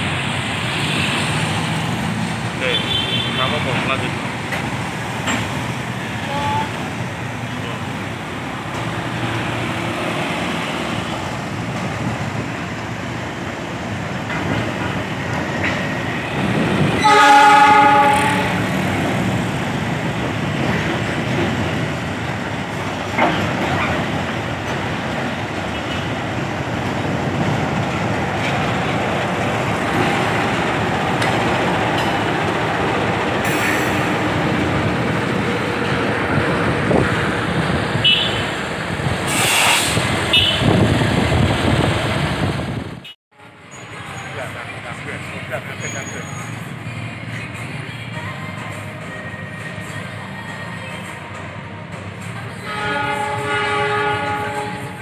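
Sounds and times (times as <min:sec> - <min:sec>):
road traffic: 0:00.0 - 0:55.0
train wheels and engine rumbling: 0:00.0 - 0:55.0
train horn blast: 0:17.0 - 0:18.8, 0:38.0 - 0:38.5, 0:39.3 - 0:40.7, 0:52.6 - 0:55.0.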